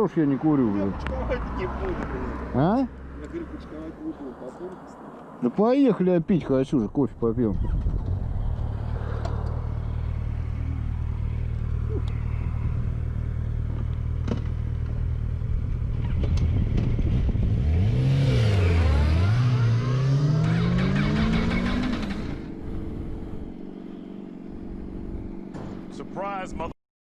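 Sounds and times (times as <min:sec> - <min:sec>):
motorcycle revving and accelerating: 0:07.5 - 0:26.7
motorcycle engine idling: 0:22.4 - 0:26.2.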